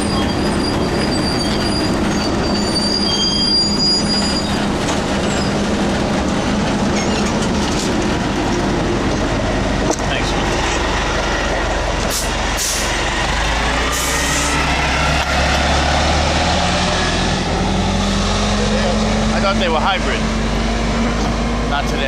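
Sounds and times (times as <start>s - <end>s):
high-pitched wheel squeals: 0.0s - 5.7s, 7.0s - 7.5s
transit vehicle rumbling: 0.0s - 22.0s.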